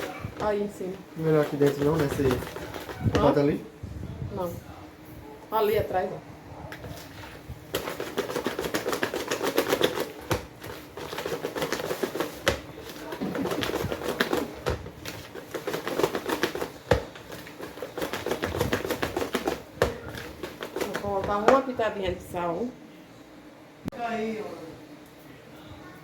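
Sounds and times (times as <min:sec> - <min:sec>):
whisk clicking and scraping bowl: 0:00.0 - 0:03.6, 0:06.7 - 0:21.8.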